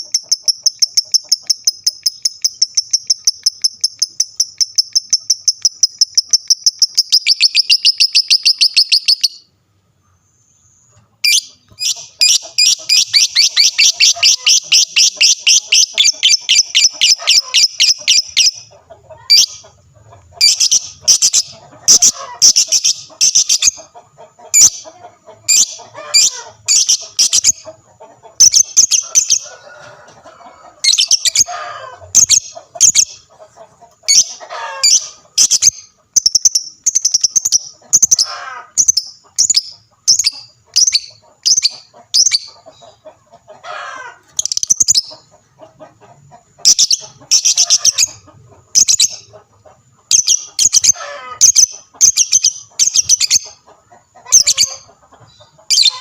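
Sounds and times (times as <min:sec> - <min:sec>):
lovebirds shrill chattering: 0:11.2 - 0:18.7, 0:20.4 - 0:23.8, 0:25.5 - 0:27.7, 0:30.8 - 0:33.2, 0:34.1 - 0:42.6, 0:44.2 - 0:45.2, 0:46.6 - 0:49.3, 0:50.1 - 0:53.6, 0:54.3 - 0:54.9, 0:55.7 - 0:56.0.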